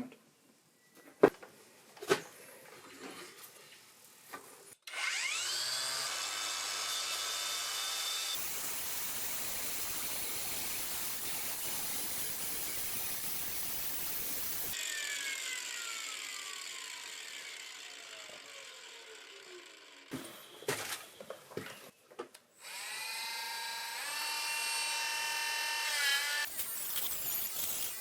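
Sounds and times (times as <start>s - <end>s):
power tool whine: 4.8s - 20.7s, 22.6s - 28.0s.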